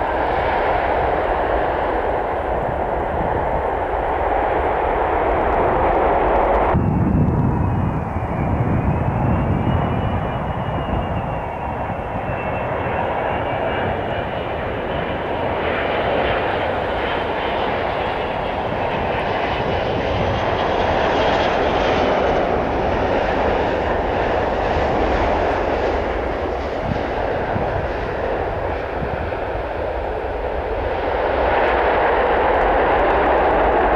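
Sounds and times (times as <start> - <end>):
airliner engines passing: 0.0 - 33.9.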